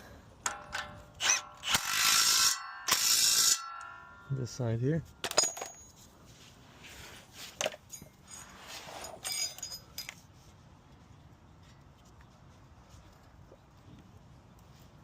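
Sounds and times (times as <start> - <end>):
metal tools clinking: 5.2 - 6.1, 7.6 - 10.3.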